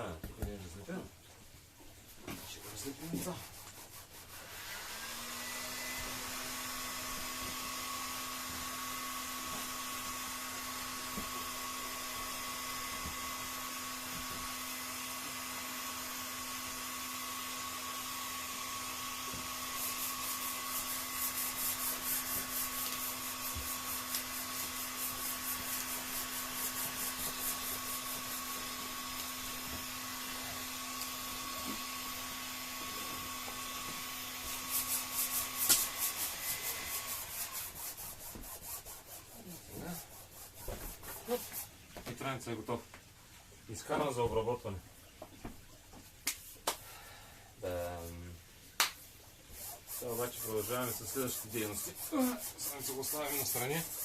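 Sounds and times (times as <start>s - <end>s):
heat gun humming: 4.6s - 38.0s, 50.0s - 54.0s
fast rhythmic scraping: 49.5s - 54.0s.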